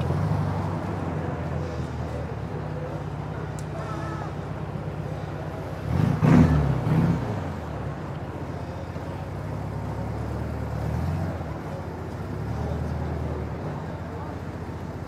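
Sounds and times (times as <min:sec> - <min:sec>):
engine rev: 0:03.6 - 0:15.0.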